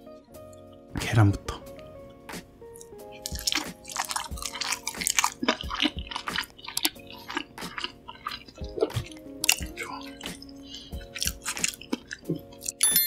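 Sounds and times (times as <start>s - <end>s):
soft background music: 0.0s - 13.0s
close chewing and crunching: 2.8s - 12.8s.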